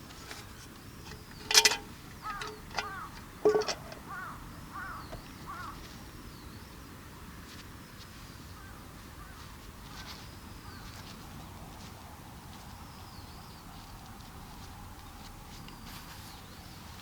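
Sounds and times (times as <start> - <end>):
birds warbling calls: 1.0 - 6.5.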